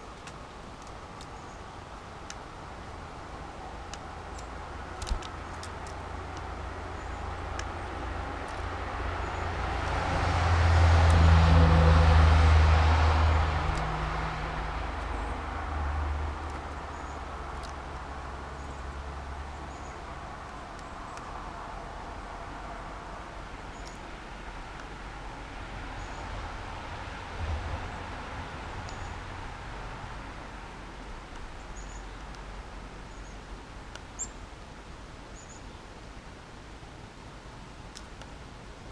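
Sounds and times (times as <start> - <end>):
car passing by: 8.6 - 16.8.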